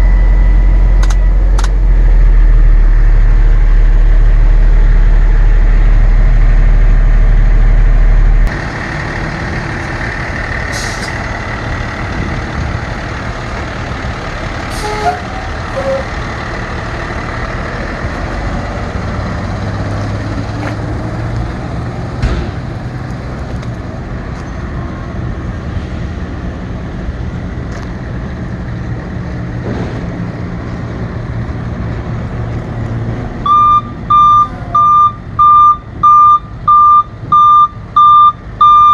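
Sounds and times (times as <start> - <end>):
reversing alarm beeping: 0.0 - 3.2, 33.4 - 38.9
truck engine running: 0.0 - 38.9.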